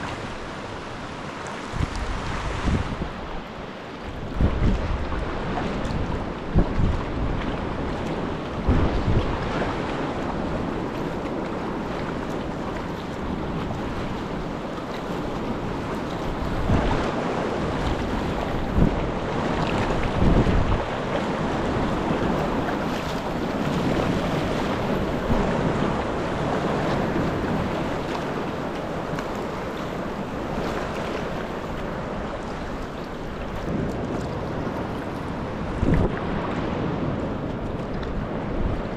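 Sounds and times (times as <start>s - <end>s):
sea waves: 0.0s - 38.9s
wind buffeting microphone: 0.0s - 38.9s.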